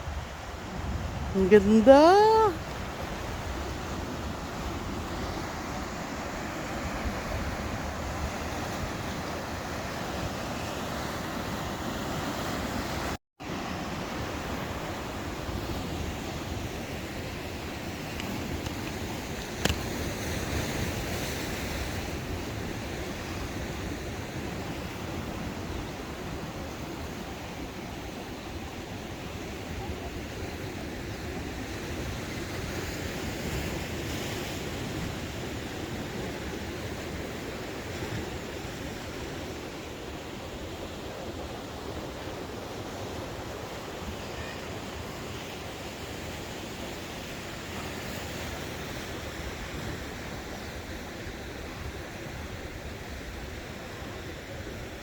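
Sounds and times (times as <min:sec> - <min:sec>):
wind on microphone: 0:00.0 - 0:13.1
wind: 0:00.0 - 0:55.0.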